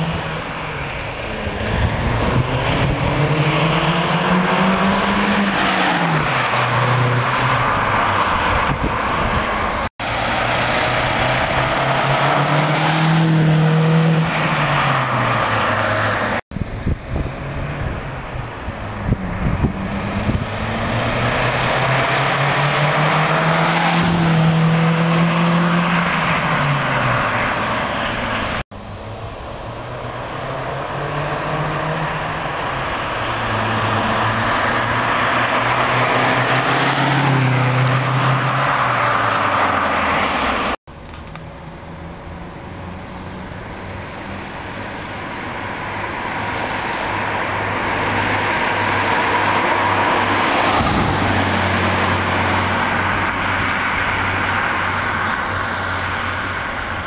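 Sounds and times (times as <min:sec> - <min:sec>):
car engine accelerating: 0:00.0 - 0:40.8.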